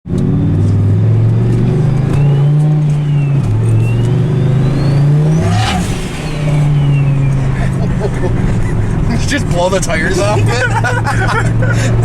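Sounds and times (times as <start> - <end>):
loud engine revving: 3.8 - 8.0.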